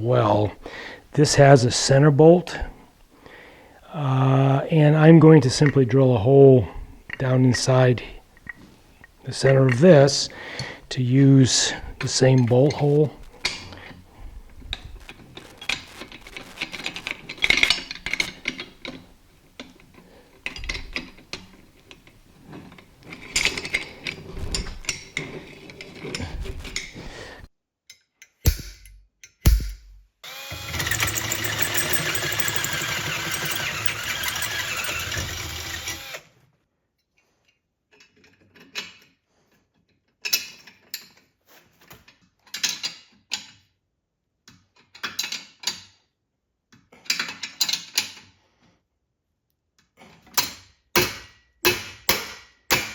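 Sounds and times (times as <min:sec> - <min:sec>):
sharp knocks: 0:28.5 - 0:30.1
electric drill running: 0:30.2 - 0:36.3
metal tools clattering: 0:30.7 - 0:35.0.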